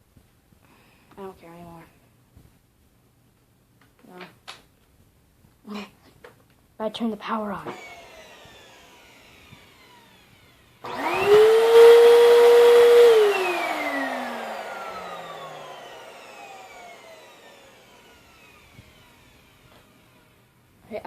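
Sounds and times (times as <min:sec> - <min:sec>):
vacuum cleaner motor whining: 0:07.7 - 0:20.5.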